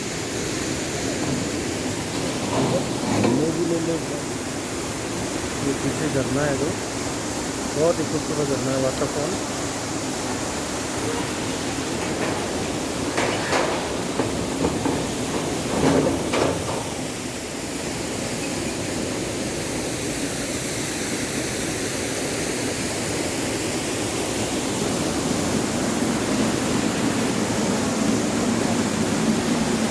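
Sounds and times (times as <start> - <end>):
waterfall rushing: 0.0 - 15.9.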